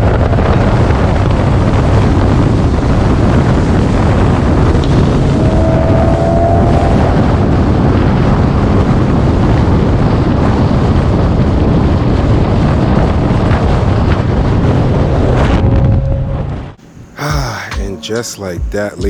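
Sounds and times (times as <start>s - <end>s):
wind buffeting microphone: 0.0s - 17.1s
car engine and road noise: 3.2s - 9.6s.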